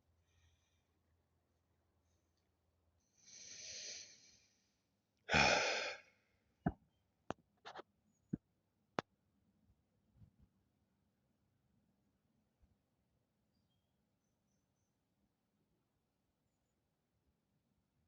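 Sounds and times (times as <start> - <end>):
person breathing in: 3.2 - 4.6, 5.3 - 6.0
person sighing: 5.3 - 6.0.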